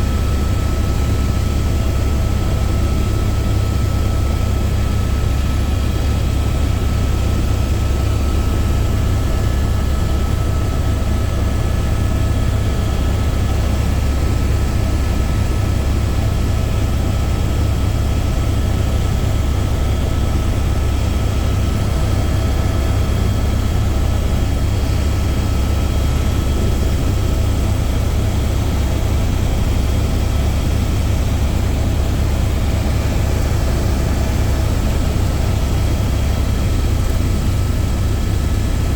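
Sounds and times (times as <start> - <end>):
helicopter rotor and engine drone: 0.0 - 38.9.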